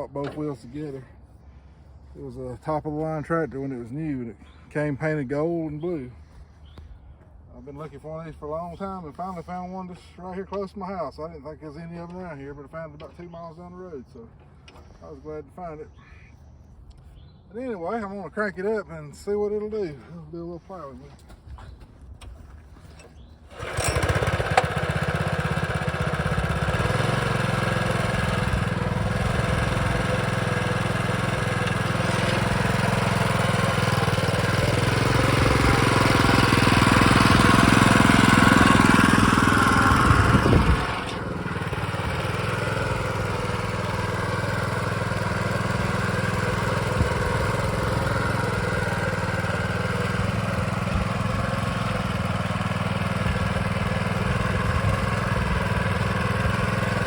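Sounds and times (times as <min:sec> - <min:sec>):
small tractor engine running: 0:23.1 - 0:57.0.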